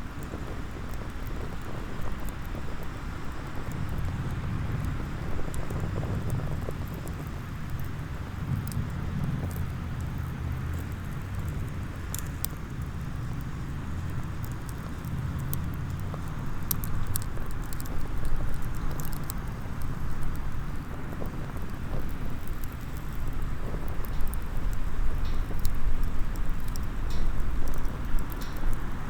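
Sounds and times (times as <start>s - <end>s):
campfire crackling: 0.0s - 29.0s
steady low rumble: 1.8s - 29.0s.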